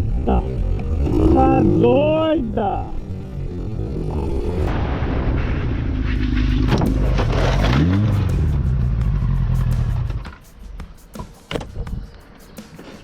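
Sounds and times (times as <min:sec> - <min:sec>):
motorcycle engine revving: 0:00.0 - 0:05.0, 0:05.7 - 0:10.4
rushing noise: 0:04.2 - 0:13.0.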